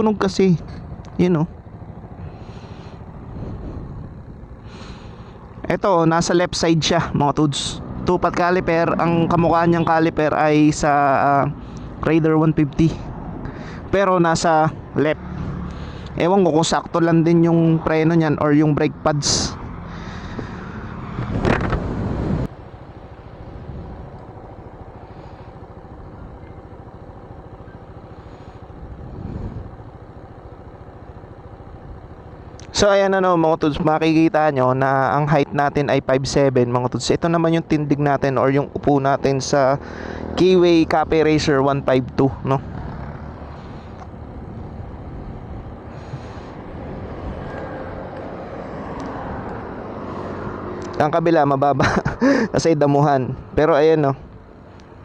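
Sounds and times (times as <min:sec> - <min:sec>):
highway traffic rumble: 0:00.0 - 0:55.0
motorcycle engine idling: 0:00.0 - 0:55.0
passing vehicle hiss: 0:45.4 - 0:51.0.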